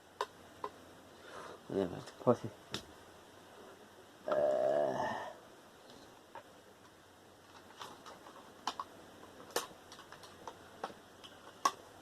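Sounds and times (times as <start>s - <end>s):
small parts clicking and tapping: 6.3s - 11.8s.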